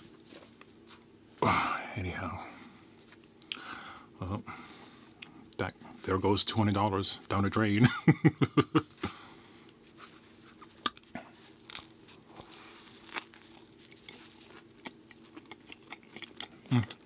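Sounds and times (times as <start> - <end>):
person chewing food: 10.4 - 17.0.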